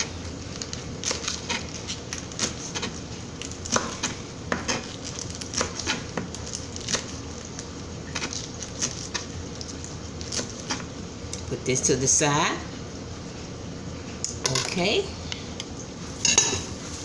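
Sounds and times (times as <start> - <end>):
knife chopping on cutting board: 3.7 - 4.9.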